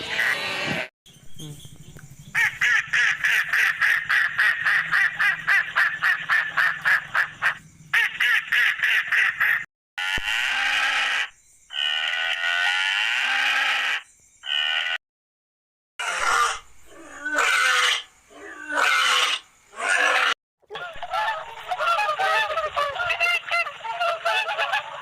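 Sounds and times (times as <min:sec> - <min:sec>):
animal calls: 0:16.0 - 0:25.0.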